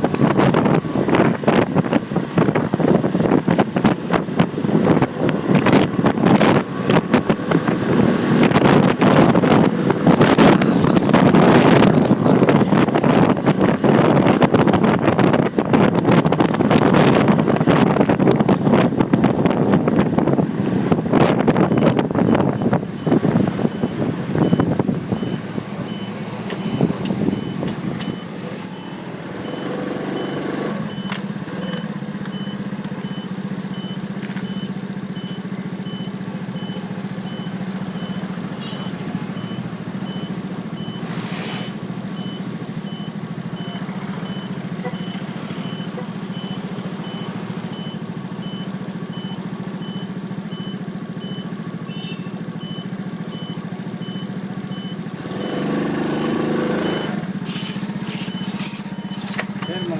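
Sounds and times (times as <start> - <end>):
motorcycle riding noise: 0.0 - 59.9
wind: 0.0 - 59.9
motorcycle engine idling: 31.0 - 41.0, 41.8 - 55.3, 57.2 - 59.9.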